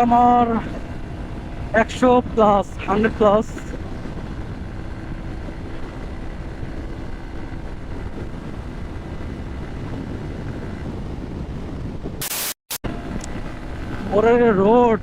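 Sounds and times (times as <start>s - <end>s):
motorcycle engine: 0.0s - 12.2s, 12.8s - 15.0s
wind rushing over microphone: 0.0s - 15.0s.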